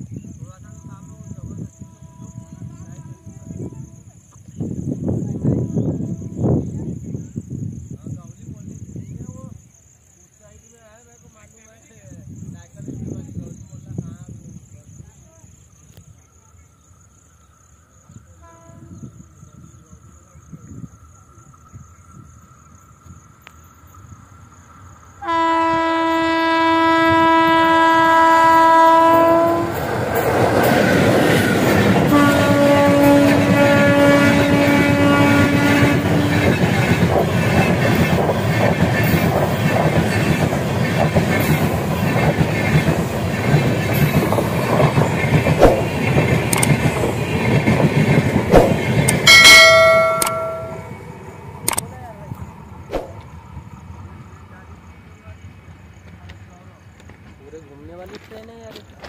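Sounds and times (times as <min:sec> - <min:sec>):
train horn blast: 0:18.4 - 0:19.1, 0:25.2 - 0:29.8, 0:32.1 - 0:36.9, 0:49.3 - 0:50.9
train wheels clacking on rails: 0:35.8 - 0:50.9.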